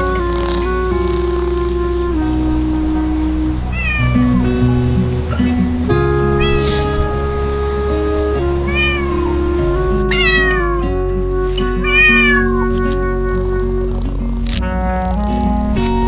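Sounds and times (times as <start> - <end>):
background music: 0.0 - 16.0
cat meowing: 3.7 - 4.6, 6.2 - 7.7, 8.3 - 10.8, 11.8 - 12.5.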